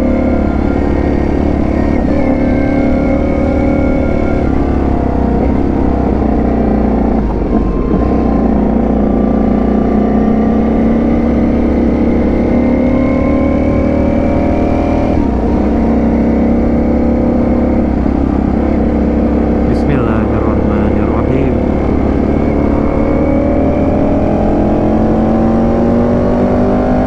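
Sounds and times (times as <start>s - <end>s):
motorcycle engine running: 0.0s - 26.9s.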